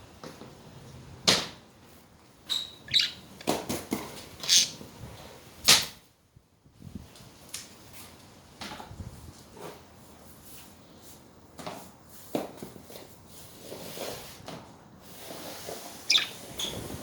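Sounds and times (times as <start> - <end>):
budgerigar chirp: 2.5 - 3.3, 4.4 - 4.8, 16.1 - 16.8.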